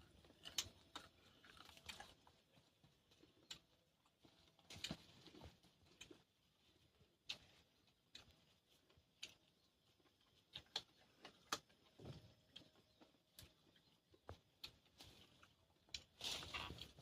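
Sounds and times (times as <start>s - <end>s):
person chewing raw fruit: 0.0s - 17.0s.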